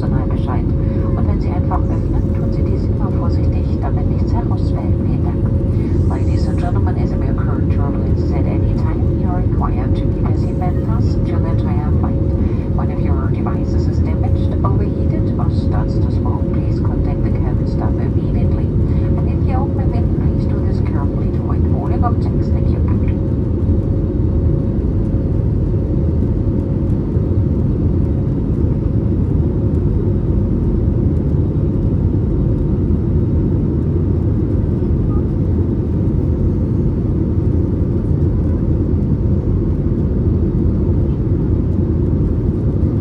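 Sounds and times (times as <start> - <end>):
airliner cabin rumble: 0.0 - 43.0
faint steady hum: 0.0 - 43.0.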